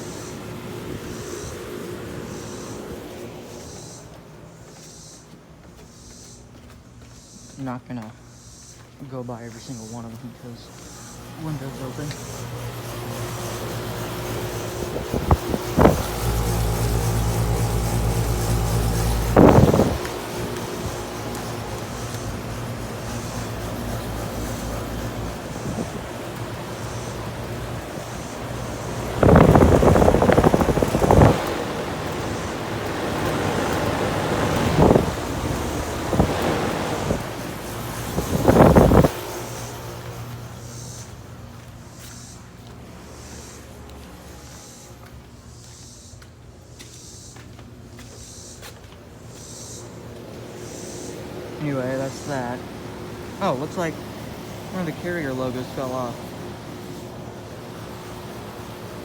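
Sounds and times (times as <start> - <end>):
air conditioner units humming: 0.0 - 59.0
wind buffeting microphone: 13.0 - 39.4.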